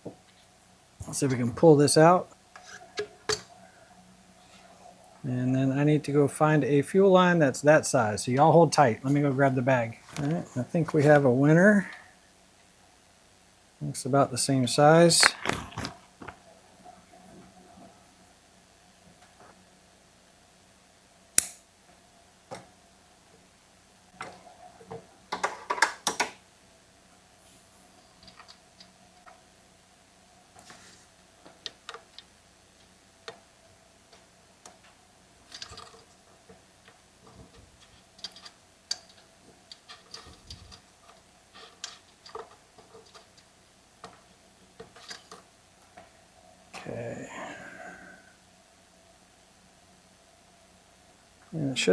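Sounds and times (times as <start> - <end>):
faint steady hum: 0.0 - 51.9
hands handling small parts on bench: 15.2 - 16.4.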